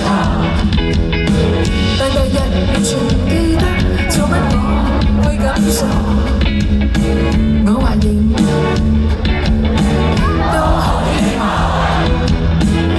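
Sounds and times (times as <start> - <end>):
live band playing: 0.0 - 12.9
person singing: 1.3 - 6.4.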